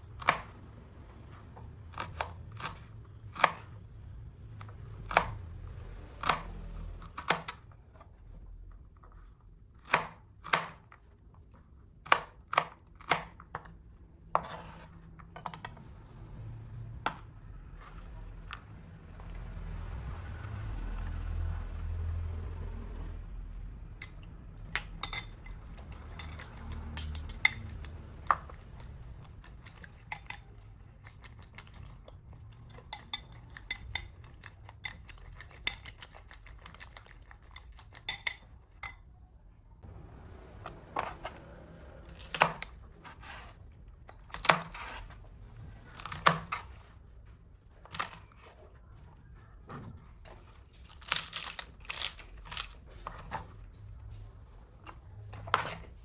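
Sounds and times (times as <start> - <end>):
utensils clinking against dishes: 24.0 - 28.9, 29.6 - 39.0.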